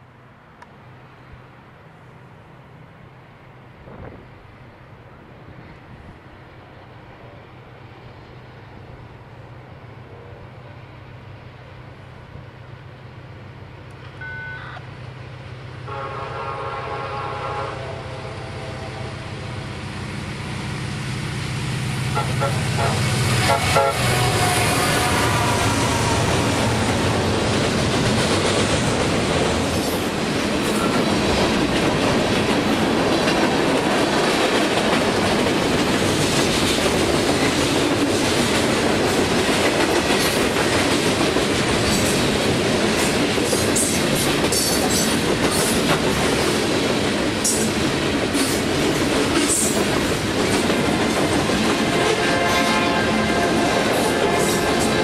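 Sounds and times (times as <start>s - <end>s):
locomotive horn: 14.2s - 14.8s, 15.8s - 19.4s, 22.1s - 26.4s, 51.7s - 55.0s.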